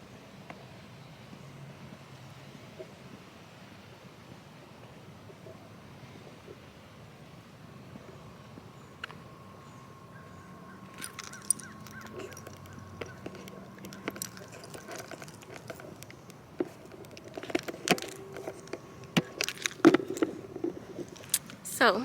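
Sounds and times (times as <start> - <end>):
sharp clicks and light knocks: 10.9 - 21.7.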